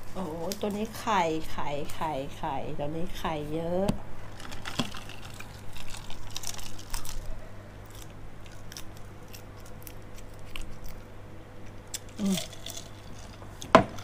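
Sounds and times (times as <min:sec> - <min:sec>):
steady low hum: 0:00.0 - 0:14.0
insect being chewed with crunches: 0:04.3 - 0:14.0.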